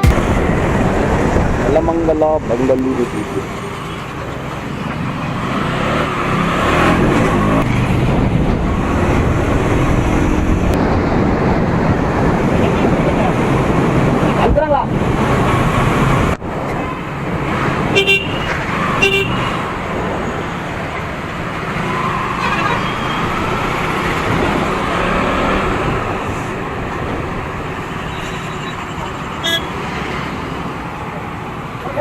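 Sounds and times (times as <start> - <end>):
road traffic: 0.0 - 32.0
vehicle horns honking: 17.9 - 19.7, 22.3 - 23.4, 29.4 - 29.8.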